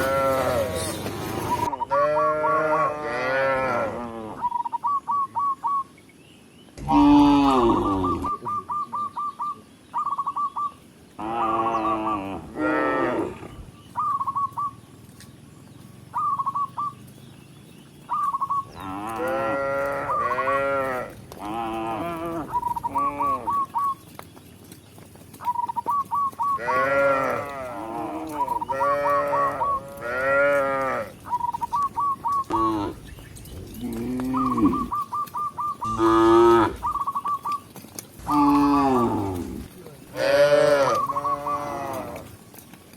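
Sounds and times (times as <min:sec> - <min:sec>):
cows mooing: 0:00.0 - 0:04.4, 0:06.8 - 0:08.5, 0:11.2 - 0:13.5, 0:18.7 - 0:23.6, 0:26.5 - 0:31.3, 0:32.4 - 0:35.1, 0:35.7 - 0:37.0, 0:38.2 - 0:42.4.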